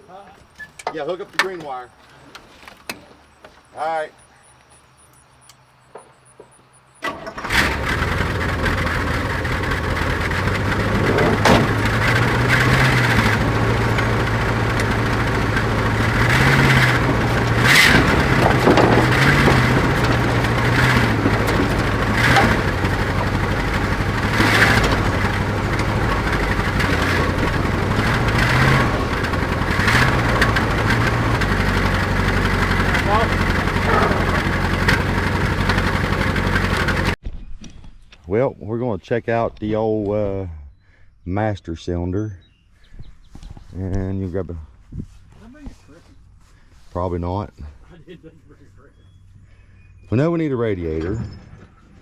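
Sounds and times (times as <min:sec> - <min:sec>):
truck engine starting and running: 0:00.0 - 0:37.2.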